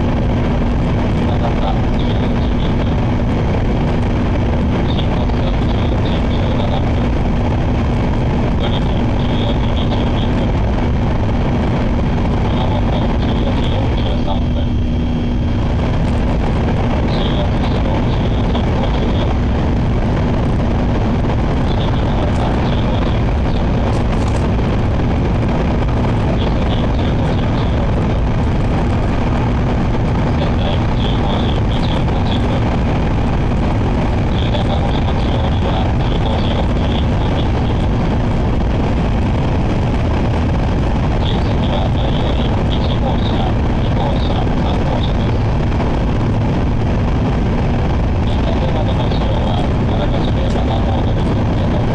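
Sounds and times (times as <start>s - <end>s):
train interior running rumble: 15.6s - 51.9s
train cabin rumble: 21.0s - 38.5s.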